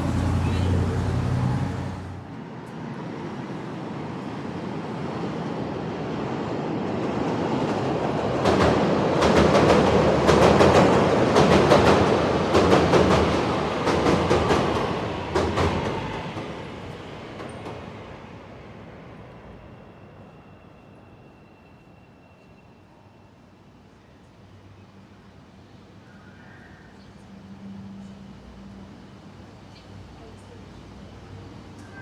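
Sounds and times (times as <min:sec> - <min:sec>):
train rumble: 0:00.0 - 0:04.3, 0:05.1 - 0:21.9.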